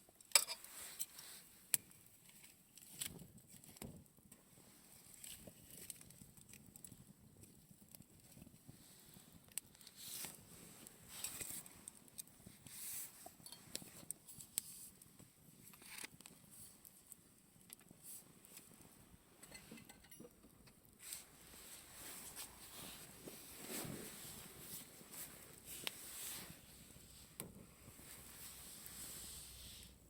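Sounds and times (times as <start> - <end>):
campfire crackling and popping: 1.2 - 19.1
fire hissing: 21.0 - 30.0.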